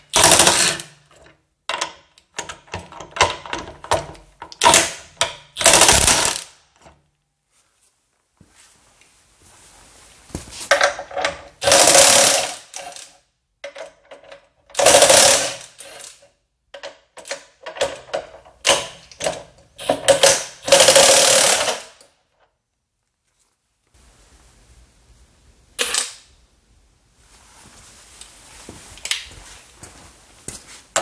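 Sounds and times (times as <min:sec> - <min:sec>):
impact wrench hammering: 0:05.6 - 0:06.5, 0:19.9 - 0:21.8.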